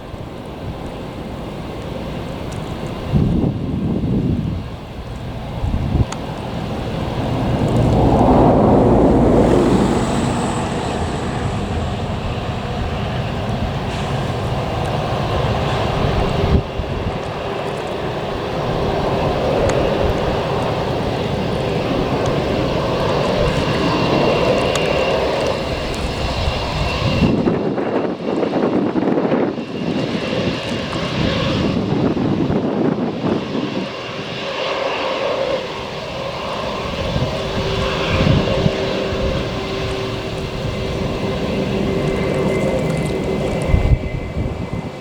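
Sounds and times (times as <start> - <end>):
jet engines roaring: 0.0 - 45.0
thin steady whine: 5.4 - 14.5.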